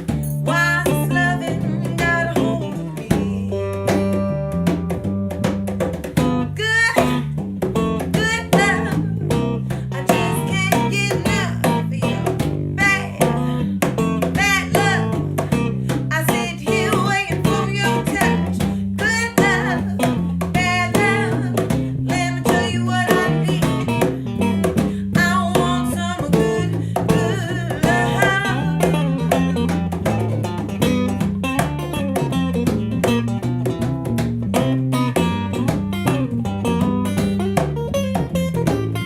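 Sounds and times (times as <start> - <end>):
person singing: 0.0 - 4.1, 8.1 - 13.6, 14.2 - 29.6
bass line: 0.0 - 39.0
electric guitars: 0.0 - 39.0.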